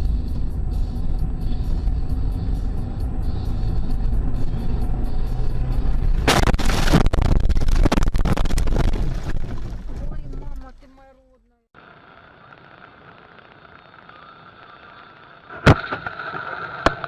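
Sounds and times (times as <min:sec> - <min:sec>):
music in car cabin: 0:00.0 - 0:06.3
car road rumble: 0:00.0 - 0:17.0
loud crashing and clattering: 0:06.2 - 0:10.4.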